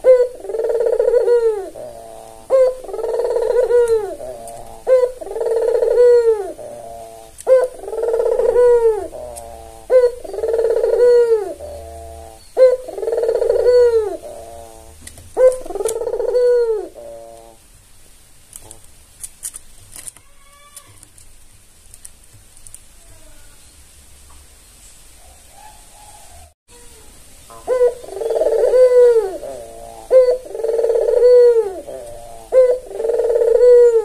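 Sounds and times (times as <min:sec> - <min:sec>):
dove cooing: 0:00.0 - 0:17.6, 0:27.6 - 0:34.0.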